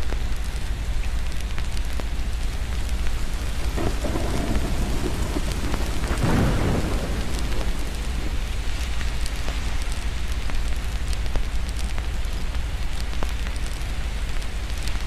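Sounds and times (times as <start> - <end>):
steady rain: 0.0 - 15.0
fireplace crackles: 0.3 - 15.0
thunder rolling: 2.7 - 10.4.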